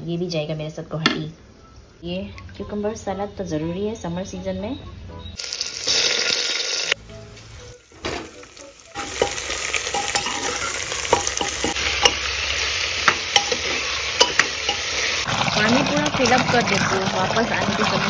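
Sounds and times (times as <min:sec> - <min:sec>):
oil sizzling in a pot: 0:05.4 - 0:18.0.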